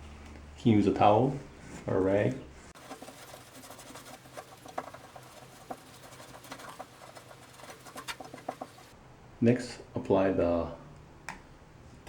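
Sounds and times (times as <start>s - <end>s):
tape scratching and clicking: 2.8s - 8.9s.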